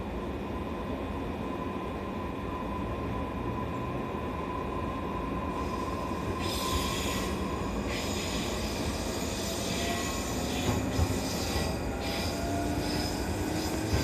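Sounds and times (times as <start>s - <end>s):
train wheels rumbling on rail: 0.0s - 14.0s
high-pitched wheel squeal: 6.4s - 14.0s.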